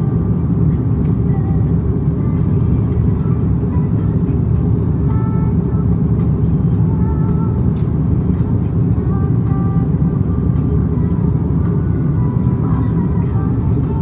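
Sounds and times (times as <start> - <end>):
airliner cabin engine rumble: 0.0 - 14.0.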